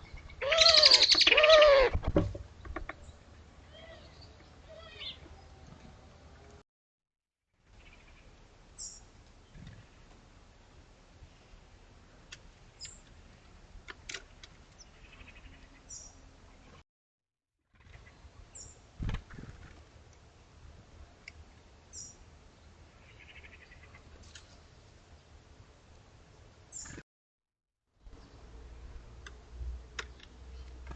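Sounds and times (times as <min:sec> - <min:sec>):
small birds chirping: 0:00.0 - 0:01.8, 0:02.5 - 0:05.9, 0:12.7 - 0:13.6, 0:14.2 - 0:16.8, 0:26.6 - 0:27.0.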